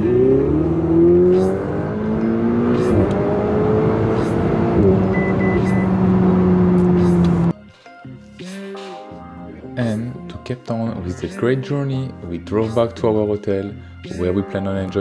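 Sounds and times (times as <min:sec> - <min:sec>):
sports car engine accelerating: 0:00.0 - 0:07.5.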